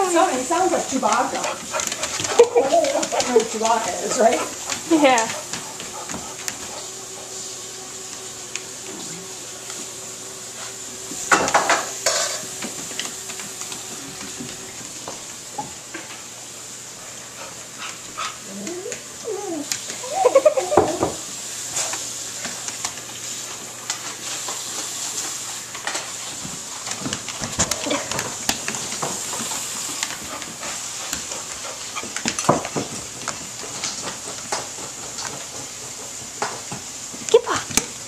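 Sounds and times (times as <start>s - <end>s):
dog warbling grumble: 18.4s - 21.0s.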